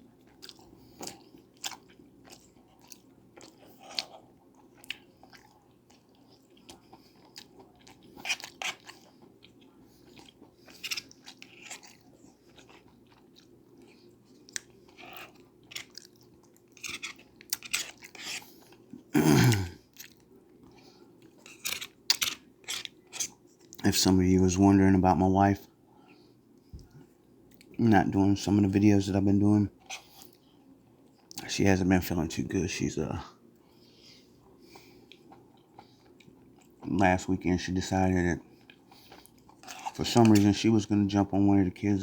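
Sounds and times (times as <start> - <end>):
man chewing food: 0.0 - 23.8, 25.9 - 27.8, 29.7 - 31.4, 33.4 - 37.0, 38.4 - 40.5.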